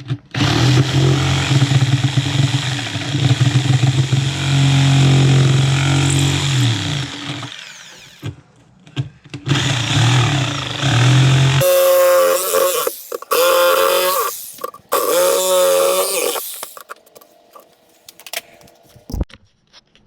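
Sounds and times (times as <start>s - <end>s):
electric power tool running: 0.4s - 8.3s, 9.5s - 17.7s.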